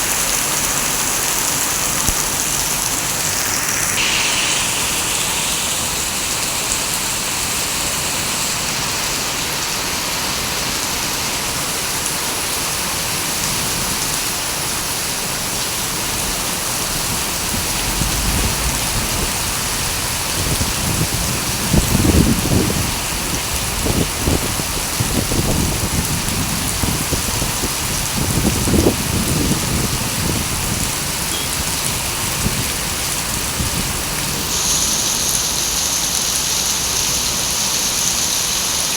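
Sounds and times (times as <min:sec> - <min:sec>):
rain falling: 0:00.0 - 0:38.9
low rumbling: 0:16.1 - 0:24.6.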